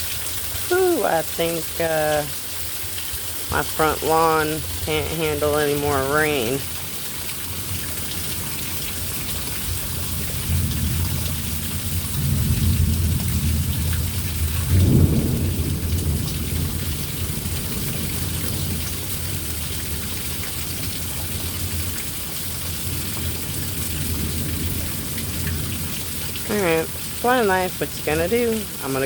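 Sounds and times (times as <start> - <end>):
heavy rain pouring: 0.0 - 29.0
rolling thunder rumble: 10.0 - 19.6.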